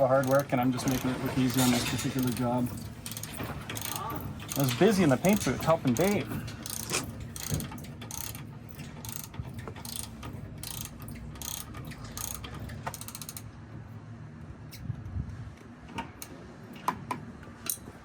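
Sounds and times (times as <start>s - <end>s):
ratchet wrench clicking: 0.2s - 13.5s.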